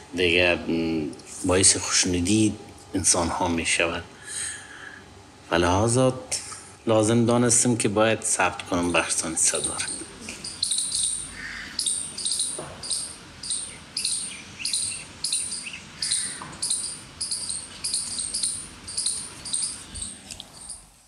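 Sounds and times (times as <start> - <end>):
bird high-pitched chirp: 9.5 - 20.8
fainter lower bird calls: 9.5 - 21.0.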